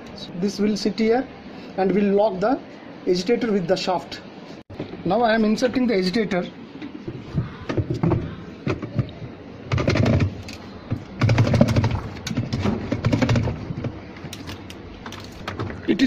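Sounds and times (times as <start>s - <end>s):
plastic agitator clicks and knocks: 7.7s - 15.9s.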